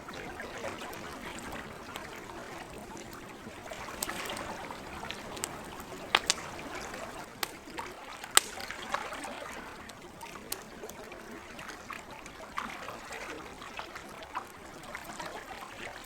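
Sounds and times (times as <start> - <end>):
campfire crackling: 0.0 - 16.0
water lapping: 0.0 - 16.0
sharp wood pops: 6.1 - 6.4, 8.3 - 8.7.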